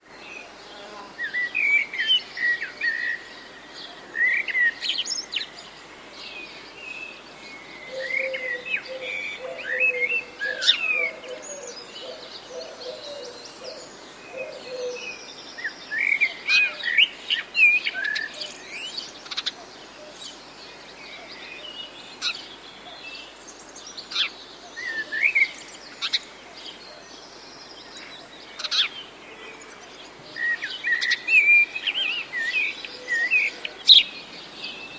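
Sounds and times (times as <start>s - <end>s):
birds chirping and singing: 7.6s - 17.1s, 24.1s - 34.9s.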